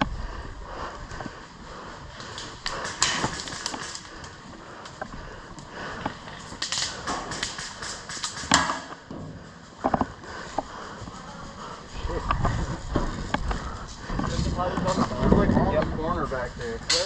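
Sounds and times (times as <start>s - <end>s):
airsoft guns firing: 2.7s - 4.1s, 6.6s - 9.0s.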